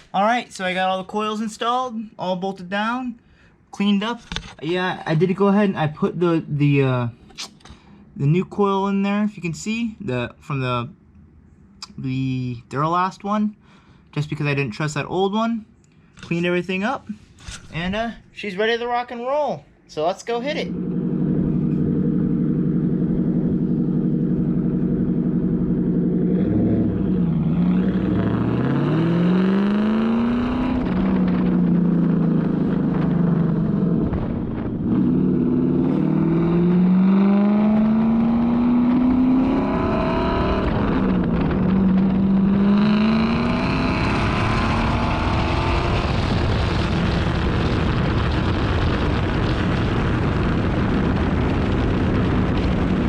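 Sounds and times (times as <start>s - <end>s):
car engine revving through gears: 20.7s - 47.2s.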